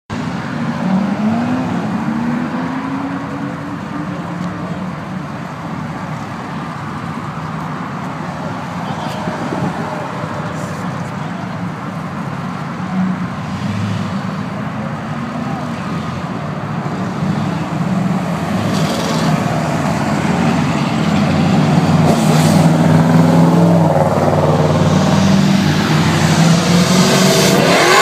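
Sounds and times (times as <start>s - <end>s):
traffic noise: 0.1s - 28.0s
car engine accelerating: 18.2s - 28.0s.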